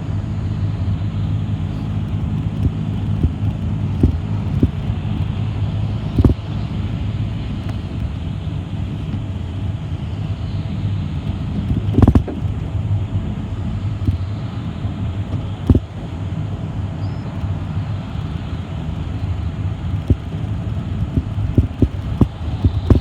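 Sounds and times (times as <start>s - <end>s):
bus engine and road rumble: 0.0s - 23.0s.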